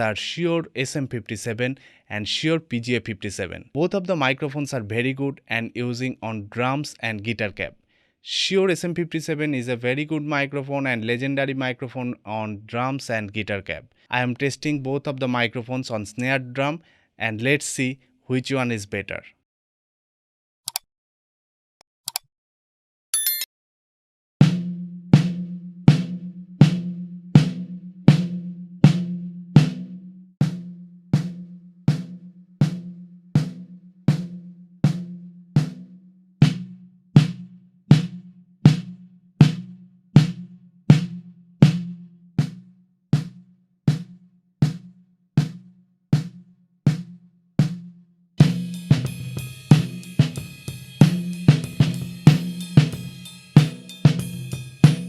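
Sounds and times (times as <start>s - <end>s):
snare drum strokes: 48.4s - 55.0s.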